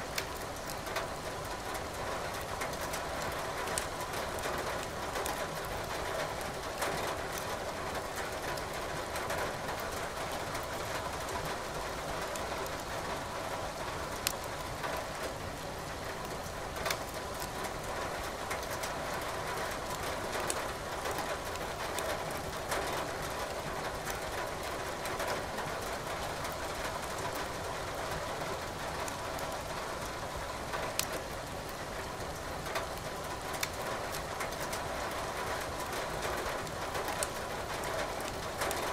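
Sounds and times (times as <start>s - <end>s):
firewood crackling and popping: 0.1s - 0.8s, 14.2s - 14.5s, 31.0s - 31.2s, 33.6s - 33.8s, 36.6s - 37.4s.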